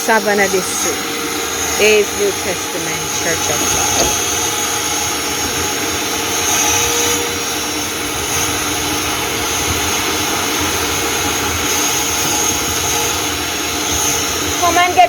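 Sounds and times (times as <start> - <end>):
car-wash equipment running: 0.0 - 15.0.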